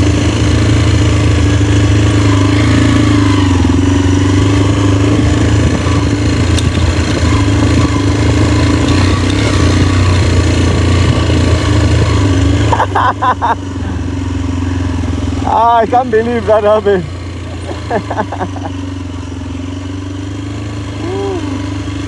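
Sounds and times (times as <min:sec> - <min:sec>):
motorcycle engine droning: 0:00.0 - 0:22.0.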